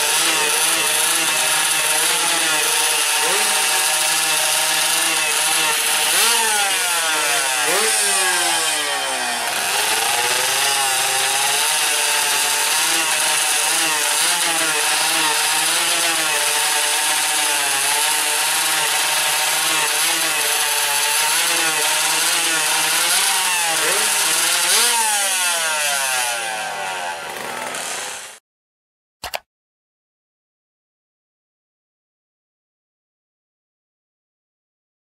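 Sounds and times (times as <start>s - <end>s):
motorcycle engines revving: 0.0s - 11.7s, 19.2s - 28.4s.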